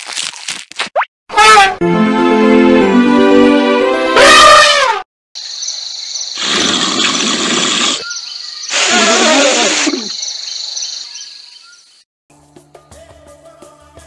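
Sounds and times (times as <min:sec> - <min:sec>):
high insect chirring: 0:05.4 - 0:11.6.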